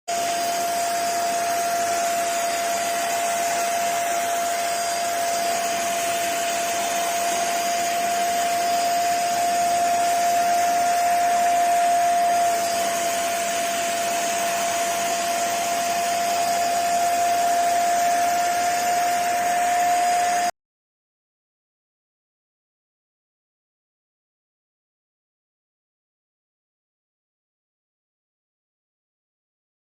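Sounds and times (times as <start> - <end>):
vacuum cleaner running: 0.1 - 20.5.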